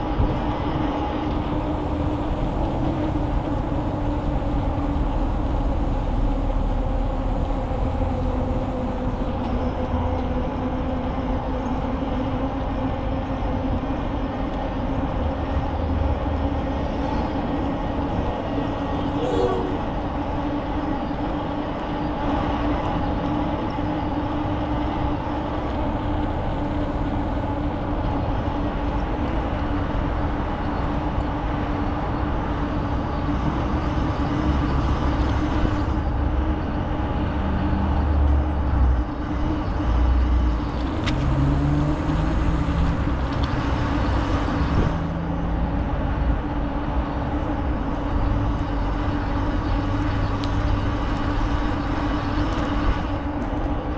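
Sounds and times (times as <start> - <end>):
bicycle tyres humming: 0.0 - 53.9
wind rumble on microphone: 0.0 - 53.9.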